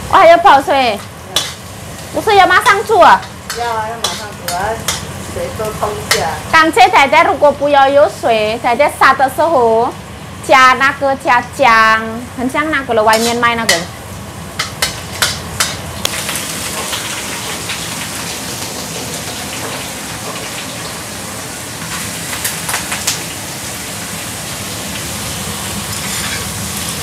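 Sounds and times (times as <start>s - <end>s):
food sizzling in a pan: 0.0s - 27.0s
utensil clicking against pan: 3.2s - 5.1s.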